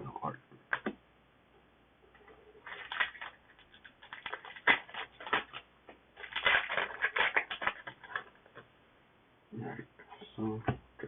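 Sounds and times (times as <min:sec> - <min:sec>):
foil wrapper crinkling and tearing: 0:02.6 - 0:08.4.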